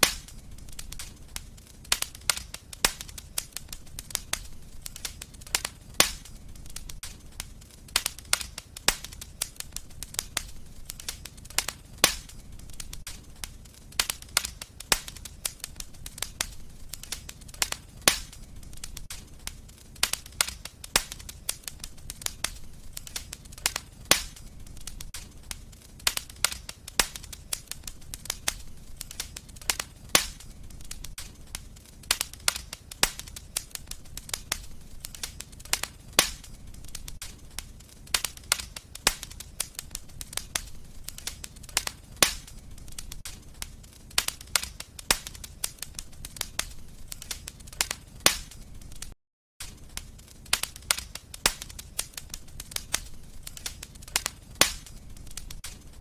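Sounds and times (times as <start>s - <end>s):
low rumble of burning: 0.0s - 56.0s
wood fire crackling and popping: 0.0s - 56.0s.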